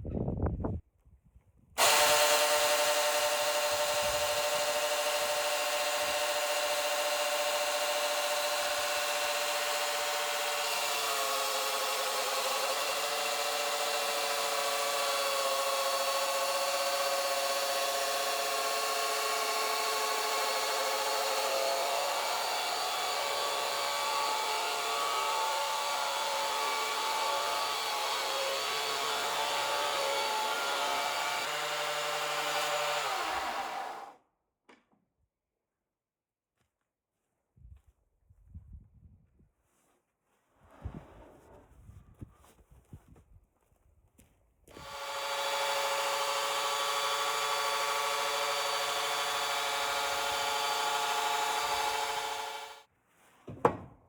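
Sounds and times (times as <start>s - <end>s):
sawmill saw whining: 1.8s - 34.2s, 44.7s - 52.9s.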